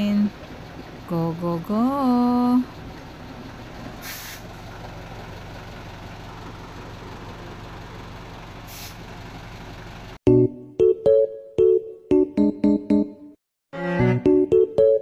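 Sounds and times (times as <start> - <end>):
vehicle engine running: 0.0 - 10.2
short hisses: 4.0 - 4.5, 8.7 - 9.0.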